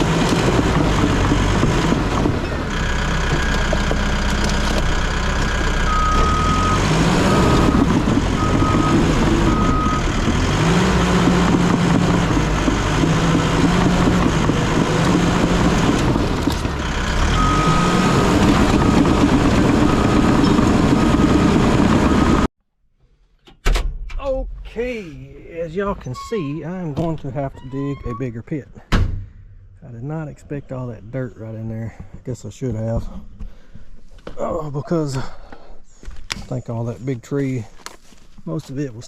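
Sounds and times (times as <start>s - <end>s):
bulldozer diesel engine: 0.0s - 22.5s
backup alarm beeping: 5.5s - 10.2s, 17.2s - 20.7s.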